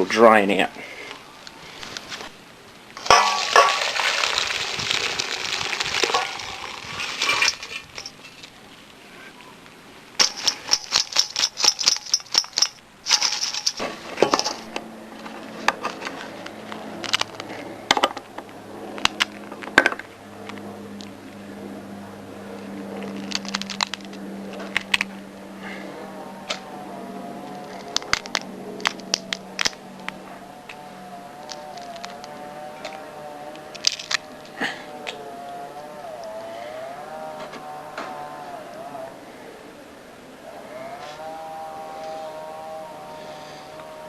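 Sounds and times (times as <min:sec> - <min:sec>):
water pouring out of a pot: 0:03.0 - 0:08.0
shells clinking against a pot: 0:10.2 - 0:14.7
scattered clicks: 0:27.5 - 0:30.8.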